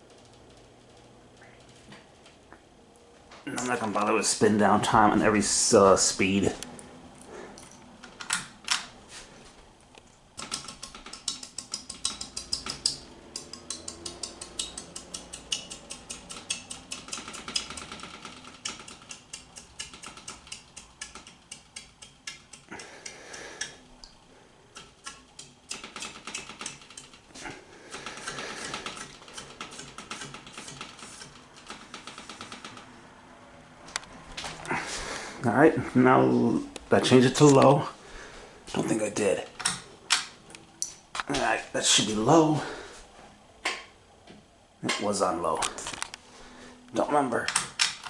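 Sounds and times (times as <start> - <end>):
ceiling fan running: 0.0 - 48.0
light clicking and tinkling: 10.5 - 18.0.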